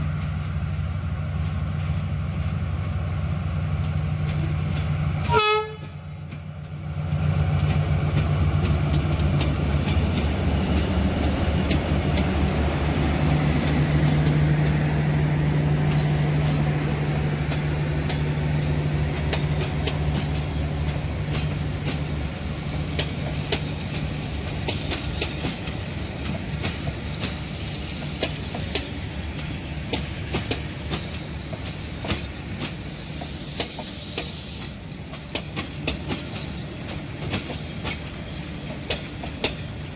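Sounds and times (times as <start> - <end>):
train wheels clicking over rail joints: 5.8 - 39.9
locomotive engine drone: 6.7 - 28.2.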